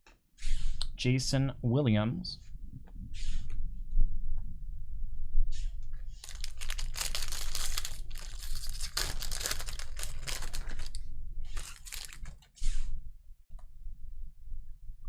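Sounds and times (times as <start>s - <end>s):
wrapper tearing and crinkling: 6.2s - 12.4s.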